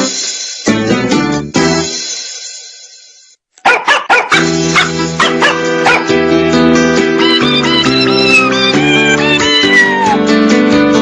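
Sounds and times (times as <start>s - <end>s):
piano-like keyboard chords: 4.4s - 11.0s.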